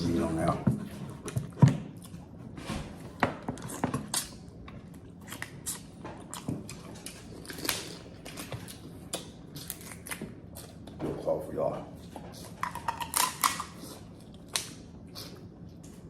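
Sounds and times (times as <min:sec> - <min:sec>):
chewing: 0:03.6 - 0:11.0, 0:12.0 - 0:16.0
crab shells cracking: 0:06.7 - 0:10.4, 0:12.6 - 0:14.9.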